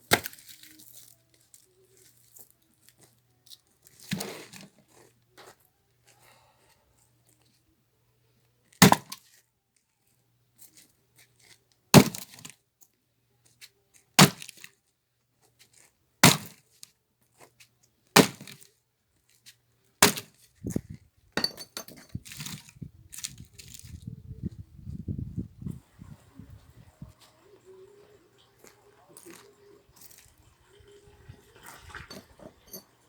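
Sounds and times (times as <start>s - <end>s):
axe striking firewood: 0.1s - 0.5s, 8.8s - 9.2s, 12.0s - 12.4s, 14.2s - 14.6s, 16.2s - 16.6s, 18.2s - 18.6s, 20.0s - 20.4s.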